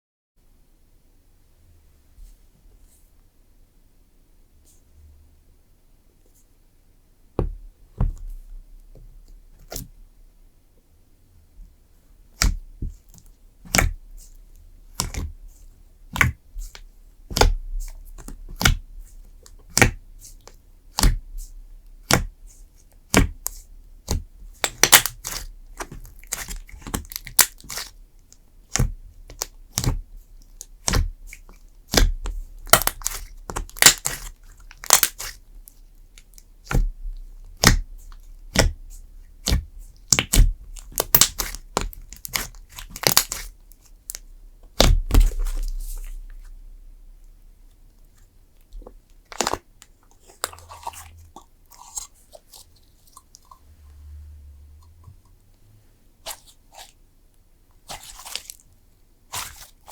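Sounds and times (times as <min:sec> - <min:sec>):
slime squished with crackling pops: 0:12.3 - 0:46.5, 0:48.1 - 0:53.4.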